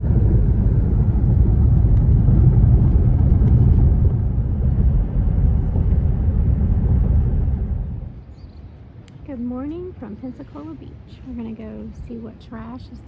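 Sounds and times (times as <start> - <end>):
loud low rumble: 0.0 - 10.0.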